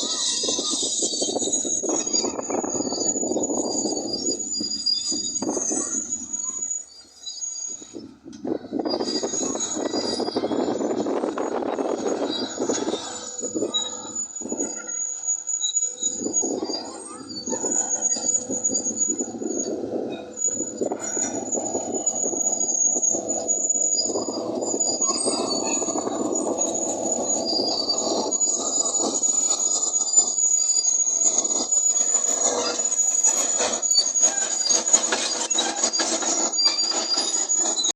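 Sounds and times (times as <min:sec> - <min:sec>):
high-pitched track squeal: 0:00.0 - 0:37.9
bulldozer engine under load: 0:09.2 - 0:37.9.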